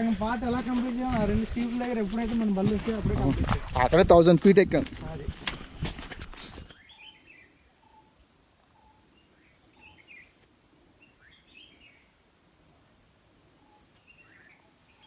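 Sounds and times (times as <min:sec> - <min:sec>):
short bird chirps: 0:06.5 - 0:08.1.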